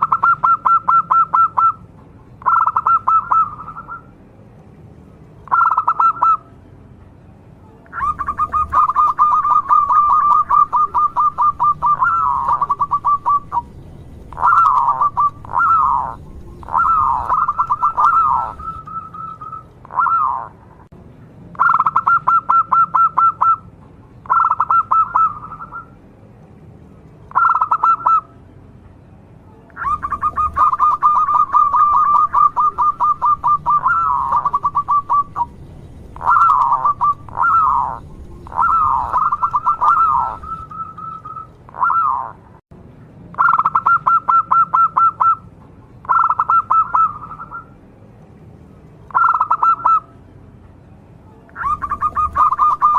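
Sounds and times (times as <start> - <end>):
dove cooing: 0.0 - 1.8, 2.4 - 4.1, 5.5 - 6.4, 7.9 - 20.6, 21.6 - 23.6, 24.3 - 25.9, 27.3 - 28.3, 29.8 - 35.6, 36.2 - 42.4, 46.1 - 47.7, 49.1 - 50.1, 51.6 - 52.9.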